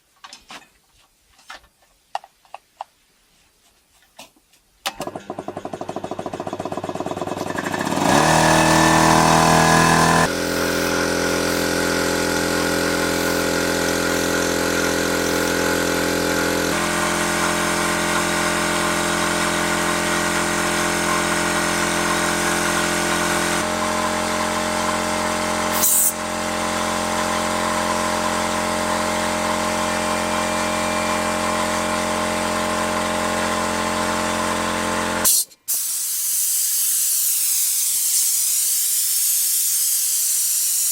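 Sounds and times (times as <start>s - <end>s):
tractor engine cranking and running: 4.9s - 25.5s.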